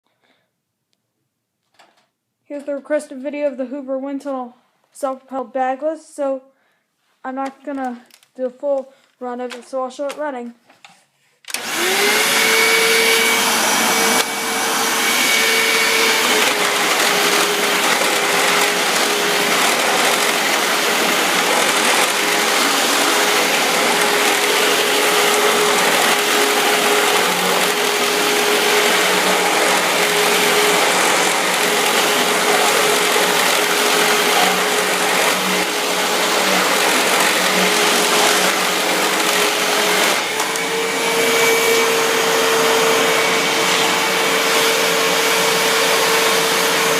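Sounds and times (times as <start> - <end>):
vacuum cleaner running: 11.5 - 46.9.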